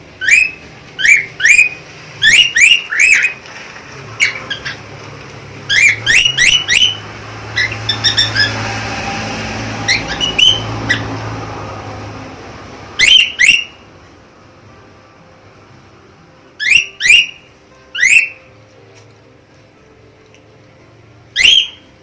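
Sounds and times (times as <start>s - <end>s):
budgerigar chirping: 0.2s - 3.4s, 4.2s - 4.8s, 5.7s - 8.6s, 9.9s - 11.2s, 13.0s - 13.8s, 16.6s - 18.5s, 21.3s - 21.9s.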